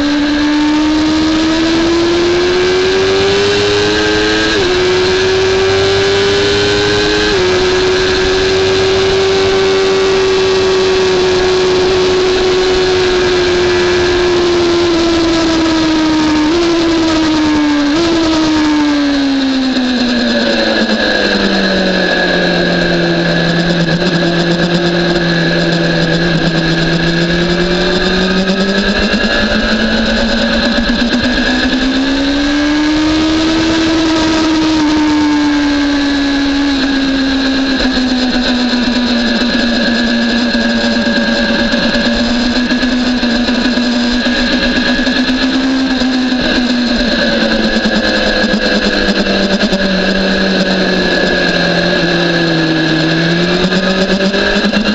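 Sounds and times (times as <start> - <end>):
motorcycle engine revving and shifting: 0.0 - 54.9.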